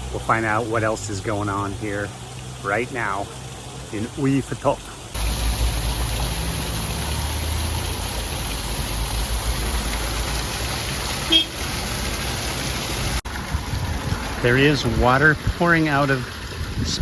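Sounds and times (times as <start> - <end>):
spring water pouring: 0.0 - 17.0
short horn toot: 11.3 - 11.6.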